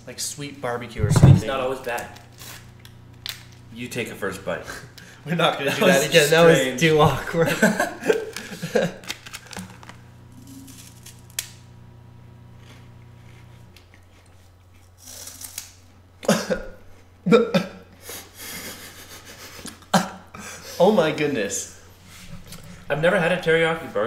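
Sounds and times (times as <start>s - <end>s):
low steady hum: 0.4s - 8.8s, 9.8s - 14.8s
muffled vocal sounds: 1.0s - 1.5s
crunching snack stick: 9.0s - 11.6s, 12.6s - 16.0s.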